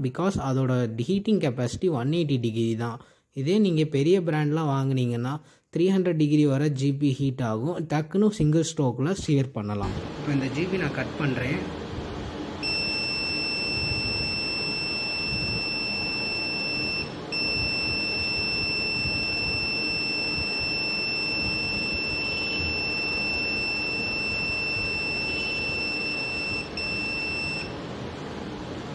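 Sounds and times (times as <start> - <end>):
high-pitched steady beep: 12.6 - 27.7.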